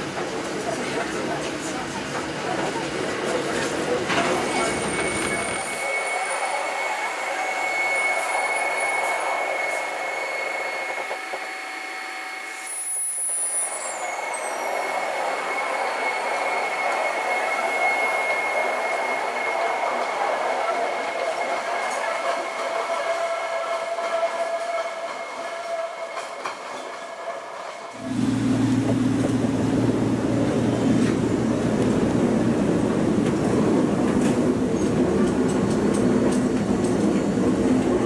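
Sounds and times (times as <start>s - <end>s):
electric train on rails: 0.0s - 38.0s
train wheel squeal: 3.2s - 28.0s.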